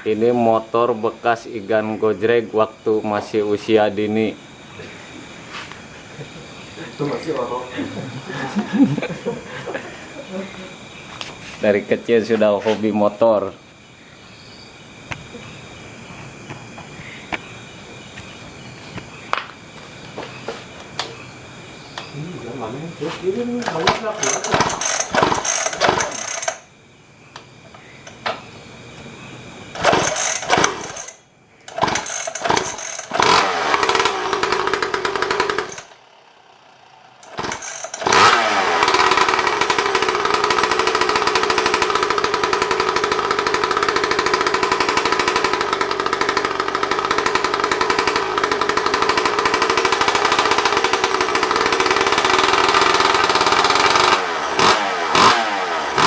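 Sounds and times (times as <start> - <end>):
small engine bursts: 23.4 - 26.8, 27.4 - 56.0
small engine running steadily: 23.6 - 56.0.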